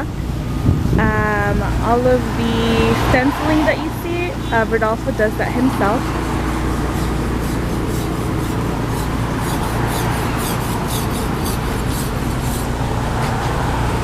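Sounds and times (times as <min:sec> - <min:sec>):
low mechanical hum: 0:00.0 - 0:14.0
short scraping strokes: 0:02.8 - 0:13.6.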